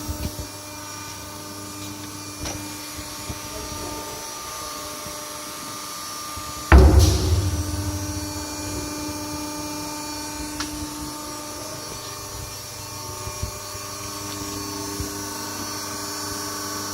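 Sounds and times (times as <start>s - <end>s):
heavy bang ringing: 6.7s - 8.9s.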